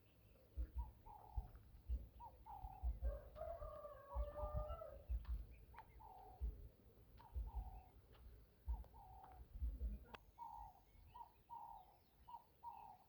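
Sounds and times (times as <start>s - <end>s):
birds calling: 0.0s - 13.0s
dull low thumps: 0.5s - 10.1s.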